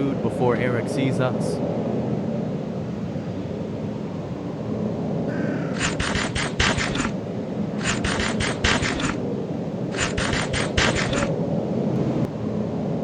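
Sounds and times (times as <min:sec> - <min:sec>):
eating crunches: 0:05.3 - 0:07.2, 0:07.8 - 0:09.2, 0:09.9 - 0:11.4.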